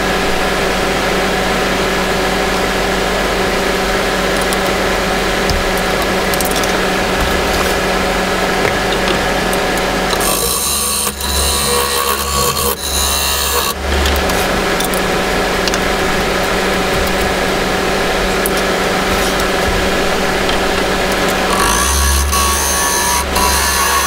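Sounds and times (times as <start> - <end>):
wood lathe humming: 0.3 - 24.0
workpiece being cut hissing: 10.1 - 15.0, 21.2 - 24.0.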